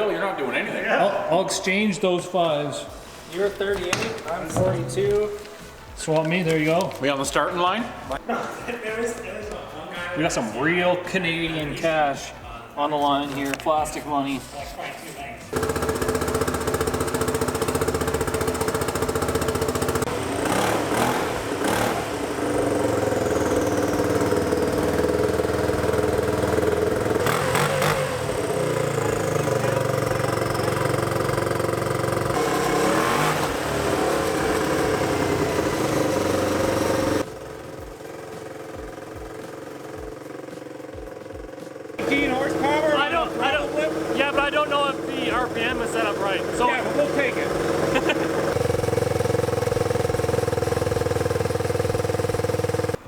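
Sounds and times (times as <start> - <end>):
engine at high revs: 15.5 - 53.0.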